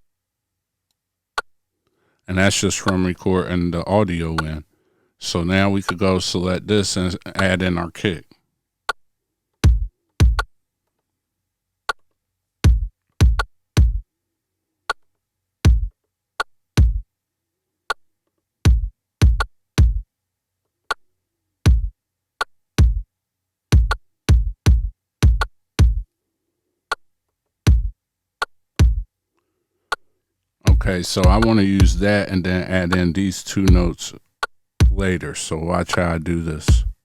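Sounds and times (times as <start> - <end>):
electronic kick drum thumps: 9.6 - 10.5, 12.6 - 14.0, 15.7 - 15.9, 16.8 - 17.0, 18.7 - 20.0, 21.7 - 22.0, 22.8 - 23.0, 23.8 - 26.1, 27.7 - 28.0, 28.8 - 29.1, 30.7 - 32.0, 33.7 - 34.0, 34.8 - 35.0, 36.7 - 37.0.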